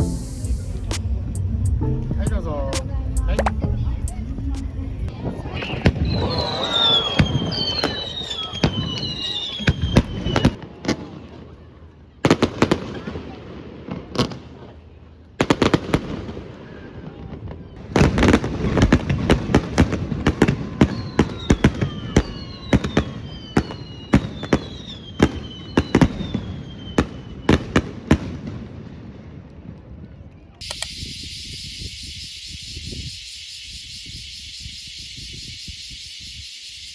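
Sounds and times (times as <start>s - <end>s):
falling firework whistles: 5.6s - 10.6s, 20.3s - 27.9s, 30.6s - 36.9s.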